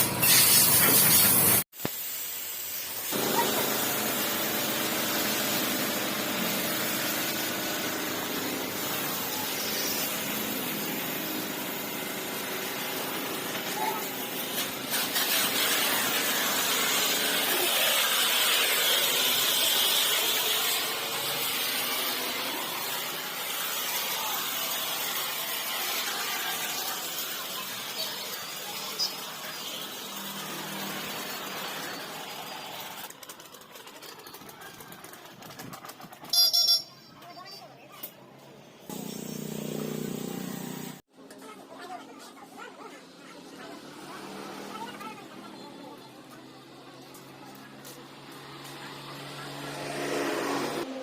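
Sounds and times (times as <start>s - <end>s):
pressure washer spraying water: 0.0s - 33.2s, 38.9s - 41.0s.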